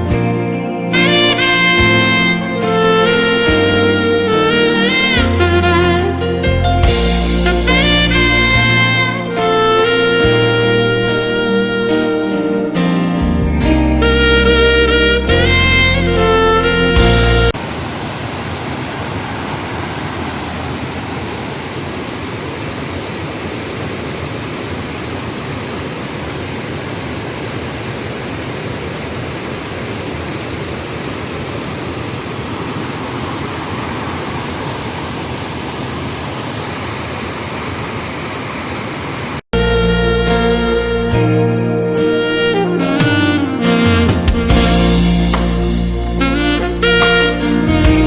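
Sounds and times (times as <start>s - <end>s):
waterfall and rapids rushing: 17.5s - 39.5s.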